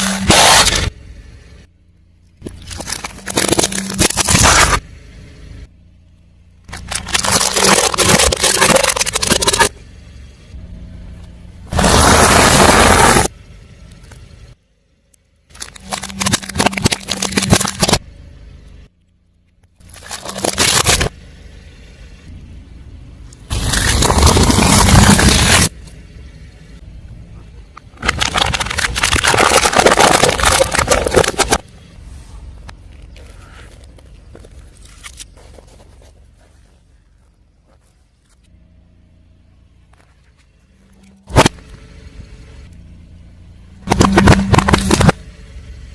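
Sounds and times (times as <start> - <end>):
low engine hum: 0.0 - 45.9
tyre crushing brittle objects: 2.4 - 4.8, 6.7 - 9.8, 15.5 - 18.0, 19.8 - 21.2, 23.5 - 25.8, 27.9 - 31.7, 43.8 - 45.2.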